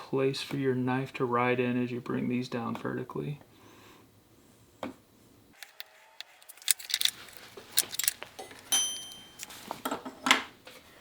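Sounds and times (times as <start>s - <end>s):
metal tools clicking on wood: 5.6s - 9.6s
metal piece ringing: 7.8s - 9.6s.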